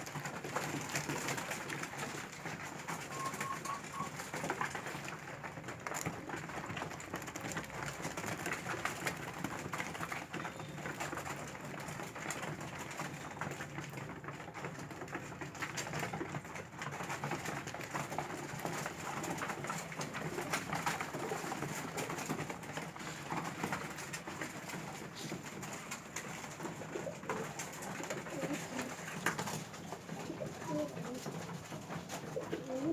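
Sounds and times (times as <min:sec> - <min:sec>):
pigeons pecking at food: 0:00.0 - 0:32.9
pigeons cooing: 0:02.0 - 0:05.1, 0:24.4 - 0:32.9.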